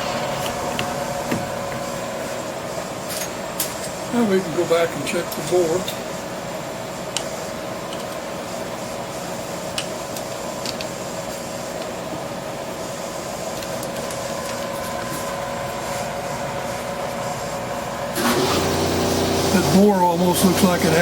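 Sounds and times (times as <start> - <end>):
metal lathe humming: 0.0 - 3.4.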